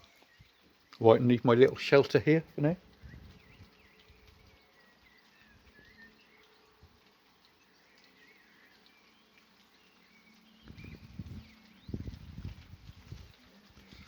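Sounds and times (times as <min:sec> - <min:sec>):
distant birds chirping: 0:00.0 - 0:12.4.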